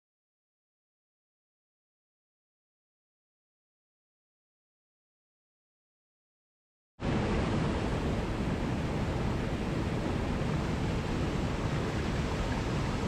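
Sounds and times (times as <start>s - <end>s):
waterfall rushing: 7.0s - 13.0s.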